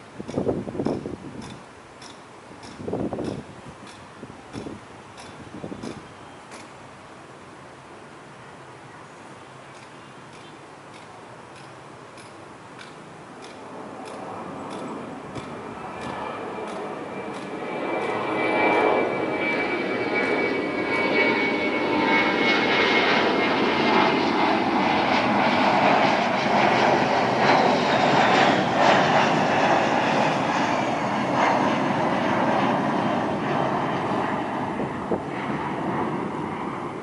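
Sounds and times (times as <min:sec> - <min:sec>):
high jet engine whine: 0:00.0 - 0:37.0
jet airliner roar: 0:12.8 - 0:37.0.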